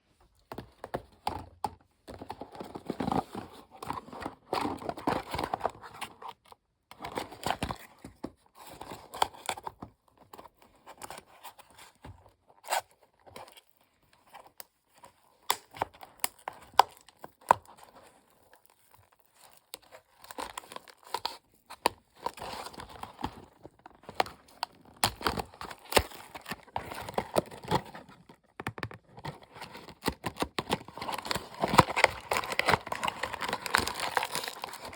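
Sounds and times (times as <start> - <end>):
packaging tearing and crinkling: 29.3 - 34.9.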